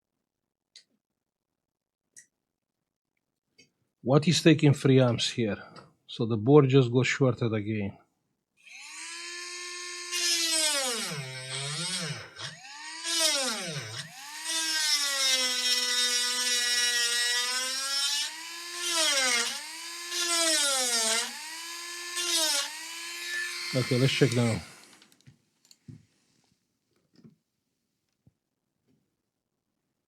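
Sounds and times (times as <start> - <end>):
micro drill whining: 8.6 - 25.2.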